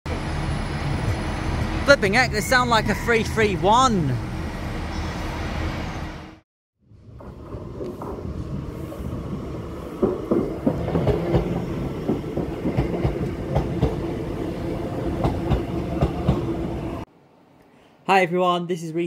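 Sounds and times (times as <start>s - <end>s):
train rumble and hum: 0.1s - 17.1s
wheels clicking over rail joints: 7.0s - 8.8s, 9.9s - 14.2s.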